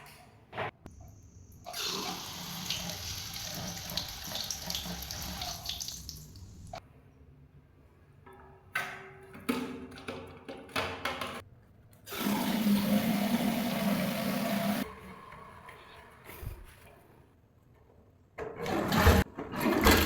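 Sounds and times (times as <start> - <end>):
water rushing into toilet cistern: 1.7 - 6.8, 12.1 - 14.9.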